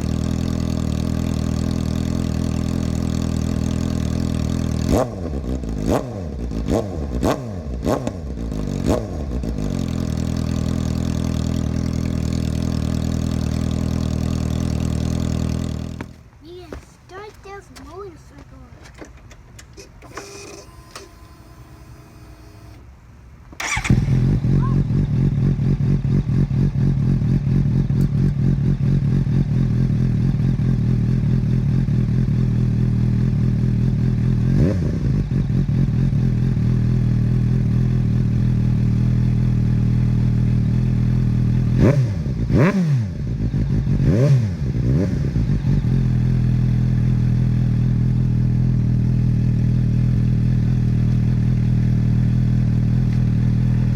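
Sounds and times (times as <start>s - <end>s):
motorcycle engine idling: 0.0s - 16.2s, 23.6s - 42.5s, 43.2s - 53.9s
motorcycle engine revving: 0.0s - 16.2s, 23.6s - 53.9s
motorcycle engine starting: 0.0s - 16.2s, 23.5s - 53.9s.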